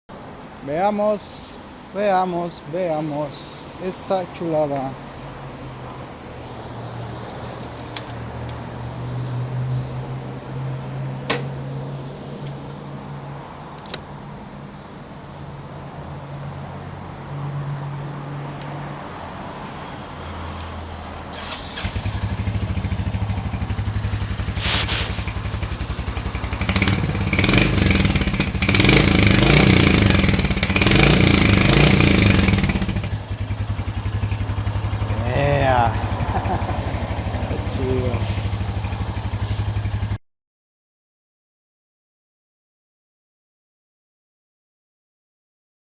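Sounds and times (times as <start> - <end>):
motorcycle engine idling and revving: 5.7 - 13.0, 19.7 - 40.2
faint low engine hum: 32.8 - 40.0.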